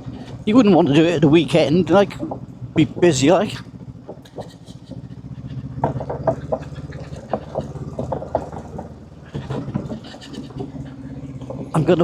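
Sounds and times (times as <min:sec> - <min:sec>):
motorcycle engine running: 0:00.0 - 0:12.0
irregular clicks and knocks: 0:02.0 - 0:02.6, 0:04.0 - 0:11.9.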